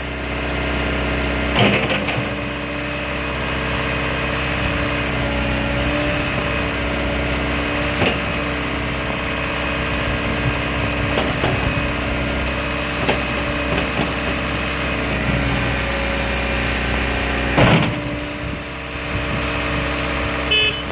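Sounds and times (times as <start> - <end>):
diesel engine idling: 0.0 - 20.9
knocks and clanks: 13.0 - 14.4, 17.5 - 18.1
loud clunk: 17.5 - 18.1.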